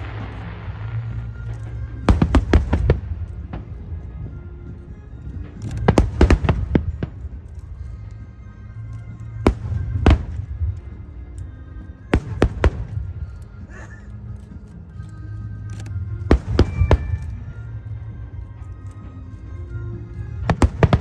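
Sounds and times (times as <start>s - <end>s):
fireworks bangs: 0.0s - 3.8s, 16.3s - 17.5s
music: 0.0s - 21.0s.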